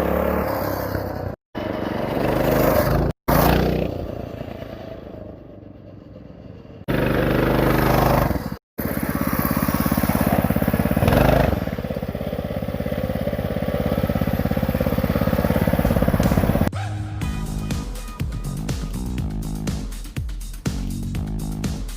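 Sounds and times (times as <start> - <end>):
mini bike engine running: 0.0 - 16.7.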